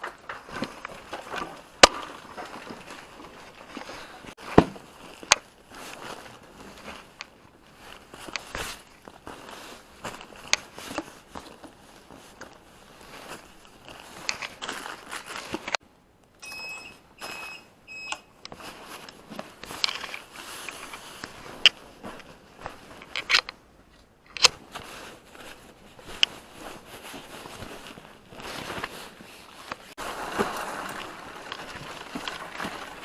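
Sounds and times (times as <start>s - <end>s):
clicks and knocks of handling: 13.8s - 14.8s, 18.4s - 25.0s
short electronic beeps: 16.4s - 18.3s.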